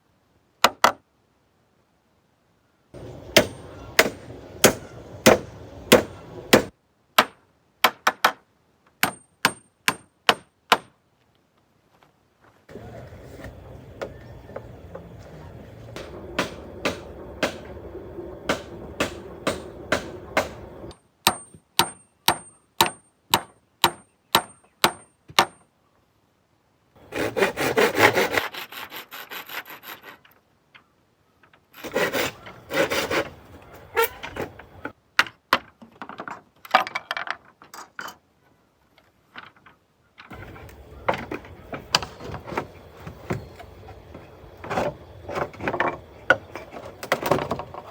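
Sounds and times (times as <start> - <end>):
hand saw sawing wood: 3.0 - 6.7, 12.7 - 20.9, 27.0 - 30.2, 31.8 - 34.9
hammer strikes: 3.0 - 8.3, 9.0 - 10.9, 12.7 - 25.6.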